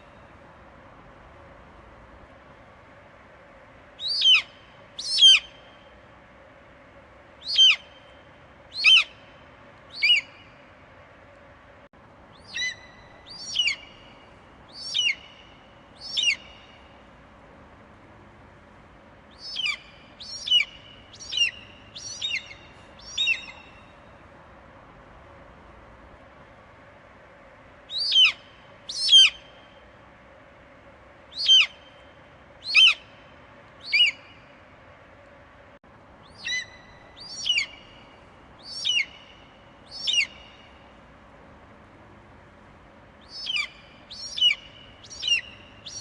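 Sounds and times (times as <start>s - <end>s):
eagle calling: 4.0s - 5.6s, 7.4s - 8.1s, 8.7s - 9.3s, 9.9s - 10.6s, 12.4s - 16.8s, 19.3s - 23.9s, 27.9s - 29.5s, 31.3s - 32.0s, 32.6s - 33.2s, 33.8s - 34.5s, 36.2s - 40.8s, 43.2s - 46.0s.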